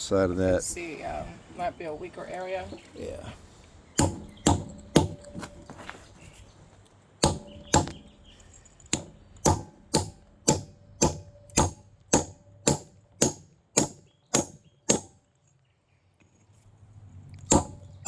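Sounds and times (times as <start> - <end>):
metal spike striking quartz: 4.0 - 5.7, 7.2 - 15.2, 17.4 - 18.0.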